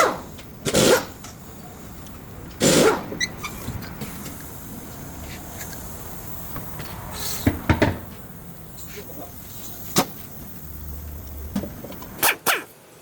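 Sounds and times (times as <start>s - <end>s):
steady low background noise: 0.2s - 13.0s
knocks and clacks of tools: 6.5s - 8.2s.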